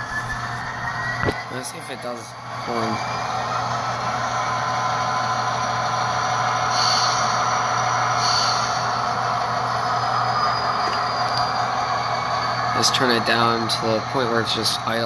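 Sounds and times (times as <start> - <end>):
model locomotive diesel sound: 0.0 - 15.0.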